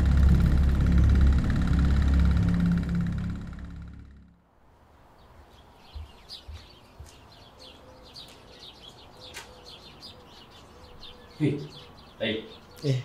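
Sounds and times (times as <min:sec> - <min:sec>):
soft low thumps: 0:00.0 - 0:04.3
small birds chirping: 0:05.1 - 0:13.0.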